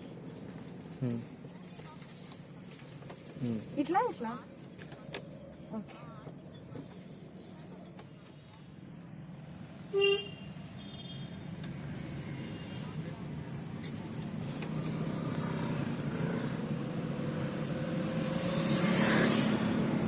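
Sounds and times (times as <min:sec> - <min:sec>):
car engine and road noise: 0:00.0 - 0:20.0
car horn toot: 0:09.9 - 0:11.2.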